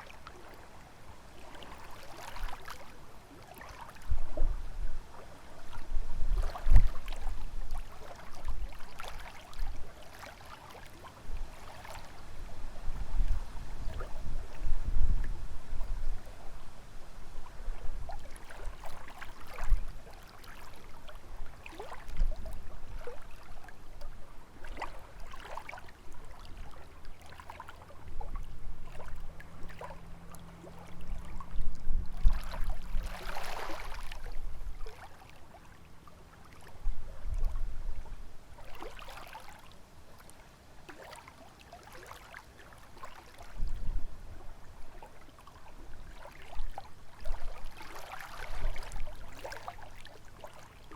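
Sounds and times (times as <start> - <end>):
lake waves lapping on shore: 0.0 - 50.9
wind rumbling on microphone: 4.0 - 9.9, 11.2 - 20.1, 20.7 - 25.4, 27.8 - 35.0, 36.7 - 38.9, 43.4 - 45.0.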